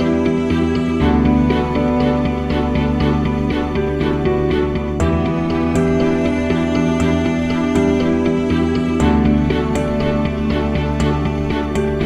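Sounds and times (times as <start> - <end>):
soft new-age music: 0.0 - 12.0.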